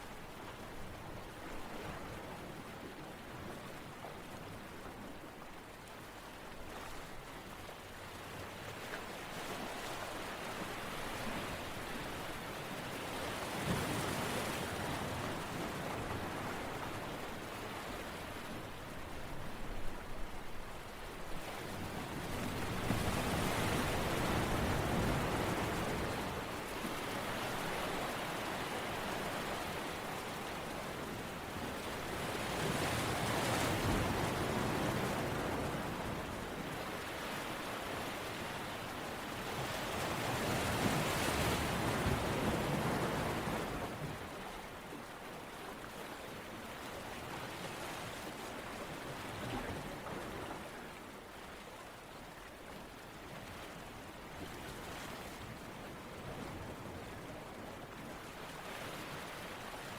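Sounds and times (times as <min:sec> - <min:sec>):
ocean surf washing: 0:21.6 - 0:45.1.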